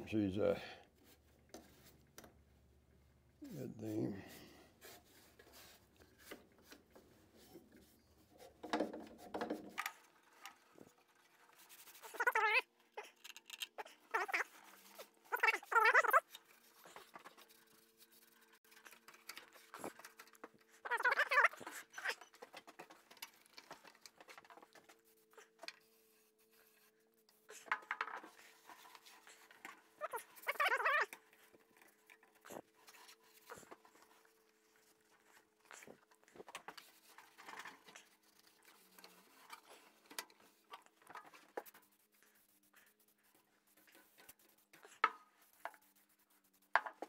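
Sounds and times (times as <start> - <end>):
light scratches: 3.4 - 47.0
hand rubbing rusty metal: 3.5 - 26.9
dog whining: 12.0 - 13.2, 13.8 - 16.3, 20.8 - 22.4, 30.0 - 31.2.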